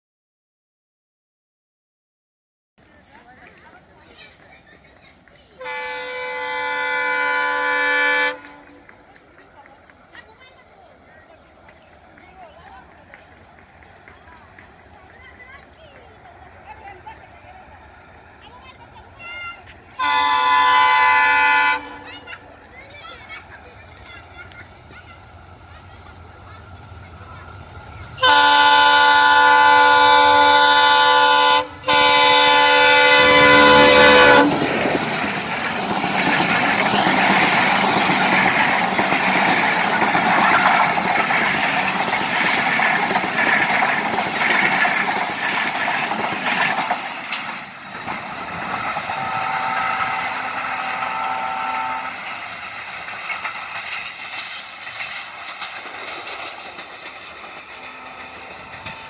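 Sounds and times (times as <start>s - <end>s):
train wheels clattering on rail: 2.8s - 59.0s
locomotive air horn blasts: 5.6s - 8.8s, 20.0s - 22.2s, 28.2s - 34.7s, 49.2s - 52.2s, 57.9s - 59.0s.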